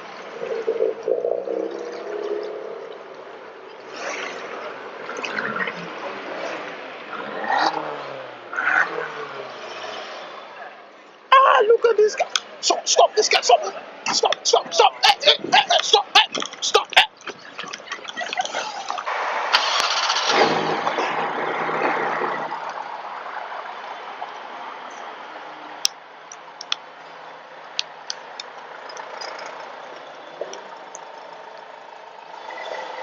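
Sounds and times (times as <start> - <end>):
car engine starting and running: 18.0 - 22.7
sharp clicks: 25.8 - 26.8.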